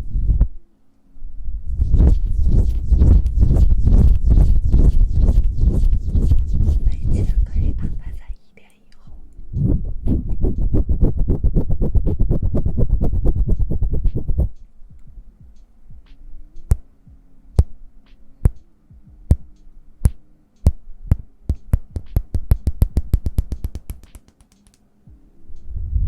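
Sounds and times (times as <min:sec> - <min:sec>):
faint low steady tones: 0:00.0 - 0:10.8, 0:13.5 - 0:23.2, 0:24.8 - 0:26.0
hands rubbing together: 0:01.7 - 0:08.2, 0:21.5 - 0:24.9.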